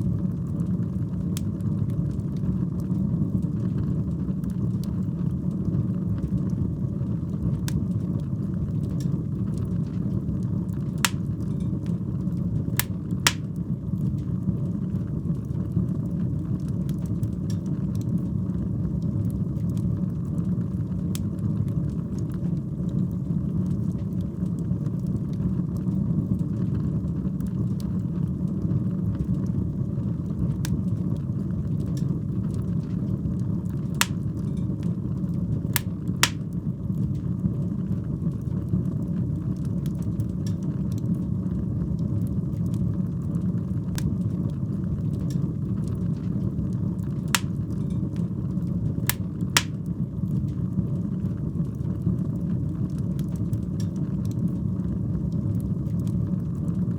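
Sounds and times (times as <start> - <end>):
fire crackling and popping: 0.0 - 15.2, 34.0 - 34.7, 35.8 - 36.7, 47.4 - 48.4, 49.1 - 50.6
fire rumbling: 0.0 - 22.2, 35.5 - 36.9, 43.7 - 53.4.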